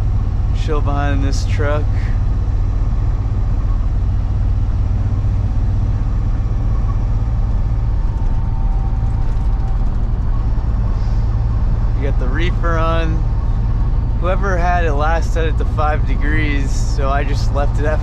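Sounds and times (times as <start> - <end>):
truck engine droning in cab: 0.0 - 18.0.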